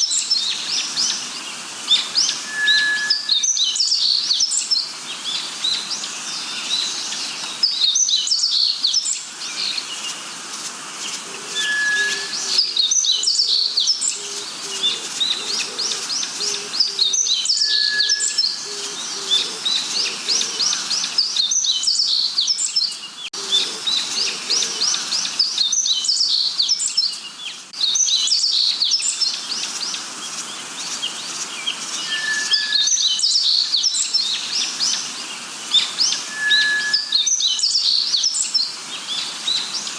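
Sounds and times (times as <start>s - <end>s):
forest birds chirping and trilling: 0.0s - 39.9s
short clear bird whistle: 2.4s - 4.2s, 11.6s - 12.8s, 17.6s - 18.6s, 32.0s - 33.5s, 36.3s - 37.6s.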